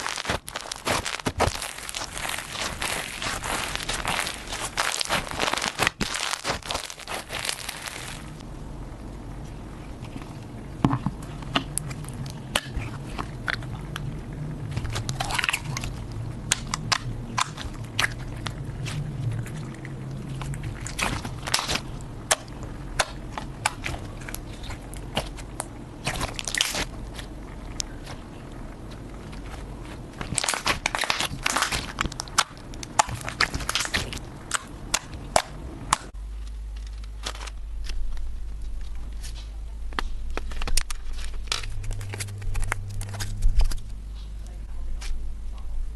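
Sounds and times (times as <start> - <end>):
slime being squeezed: 0.0 - 8.4, 20.3 - 27.3
slime crackling and popping: 0.0 - 8.4, 11.5 - 36.2
low hum: 0.0 - 45.9.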